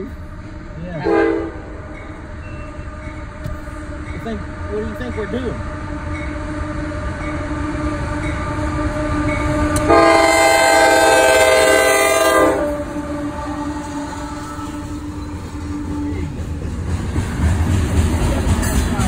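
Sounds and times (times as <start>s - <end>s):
locomotive air horn blast: 0.0s - 1.9s, 5.6s - 16.0s
freight train rumbling: 0.0s - 19.0s.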